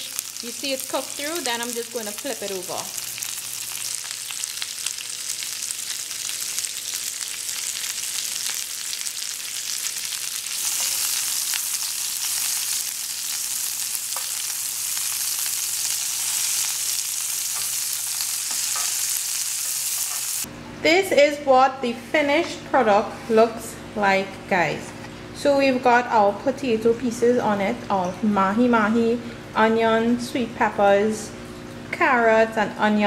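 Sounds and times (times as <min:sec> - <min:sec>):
skewers sizzling in grill pan: 0:00.0 - 0:20.5.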